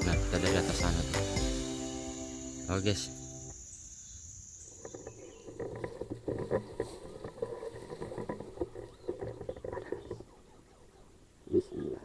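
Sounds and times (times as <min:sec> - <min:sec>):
leaves and undergrowth rustling: 0:04.7 - 0:10.8.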